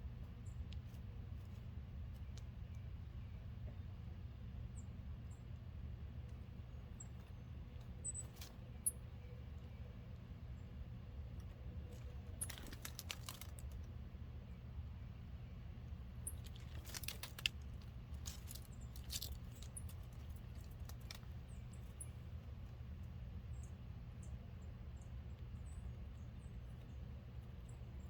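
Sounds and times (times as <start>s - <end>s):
steady low rumble: 0.0s - 28.0s
birds pecking at feeder: 6.1s - 14.0s, 15.8s - 28.0s.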